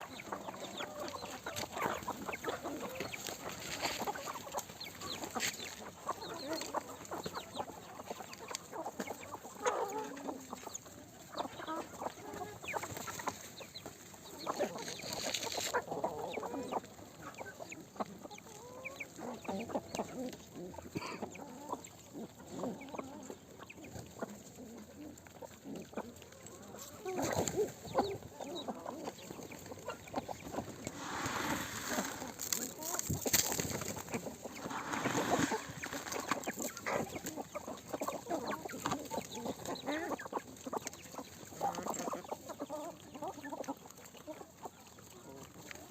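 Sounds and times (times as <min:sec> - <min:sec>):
chickens clucking: 0:00.0 - 0:45.9.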